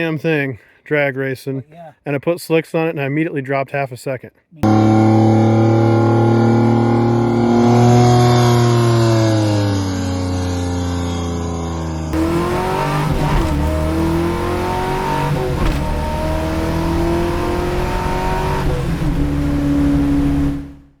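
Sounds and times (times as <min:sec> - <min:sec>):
car engine accelerating: 0:04.6 - 0:21.0.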